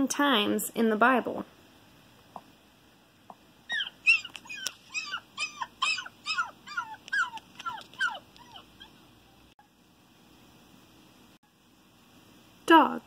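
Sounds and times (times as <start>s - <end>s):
dog yelping whimpers: 3.7s - 9.1s.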